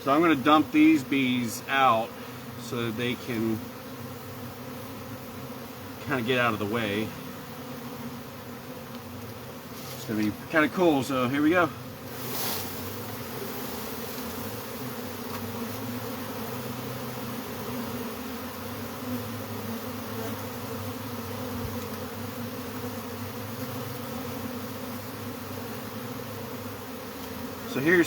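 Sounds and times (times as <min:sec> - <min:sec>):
bees buzzing: 0:00.0 - 0:28.0.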